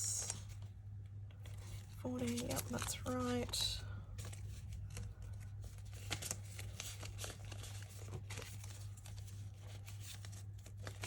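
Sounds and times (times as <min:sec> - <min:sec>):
steady low hum: 0:00.0 - 0:11.0
hands rustling banknotes: 0:01.4 - 0:11.0.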